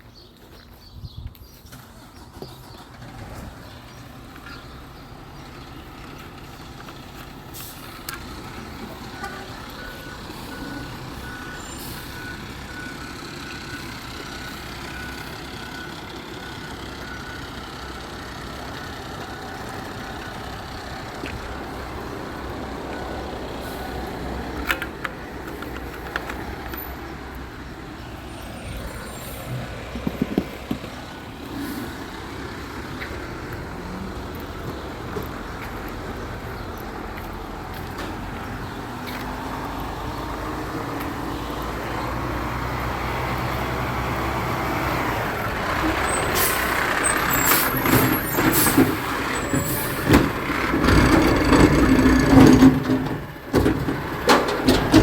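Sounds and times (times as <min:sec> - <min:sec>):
garbage truck engine running: 0:01.6 - 0:55.0
reversing alarm beeping: 0:09.1 - 0:20.4.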